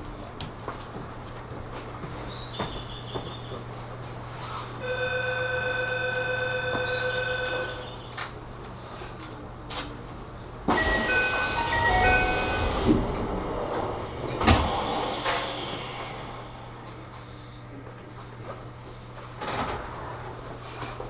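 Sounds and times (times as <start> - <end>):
train door chime melody: 10.7 - 15.6
doors shutting clunk: 10.7 - 17.0
air hiss: 14.4 - 17.4.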